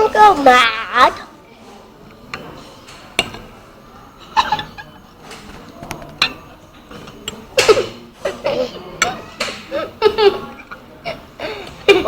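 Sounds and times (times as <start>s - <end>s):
cutlery clinking on crockery: 2.2s - 3.6s, 4.3s - 9.7s
person coughing: 7.6s - 10.0s.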